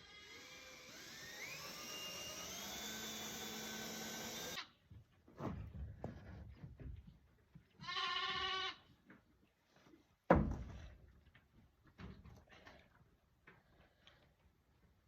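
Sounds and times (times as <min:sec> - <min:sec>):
sheep bleating: 0:07.8 - 0:08.8.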